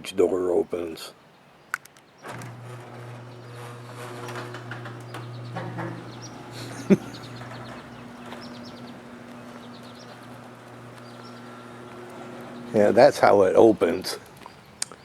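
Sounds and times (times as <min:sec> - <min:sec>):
garage door clunk: 0:02.2 - 0:13.0
garage door mechanical hum: 0:02.2 - 0:15.0.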